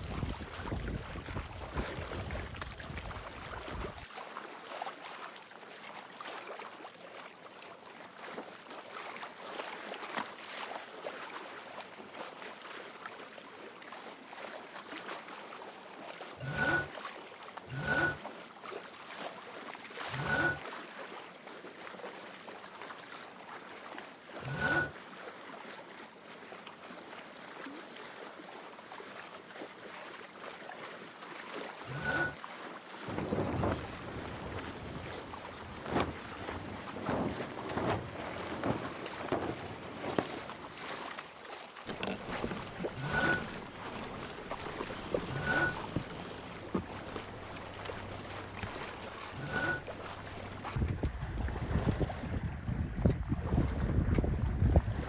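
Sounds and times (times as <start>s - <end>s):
water rushing along boat hull: 0.0s - 55.0s
water splashing against boat hull: 33.0s - 52.3s.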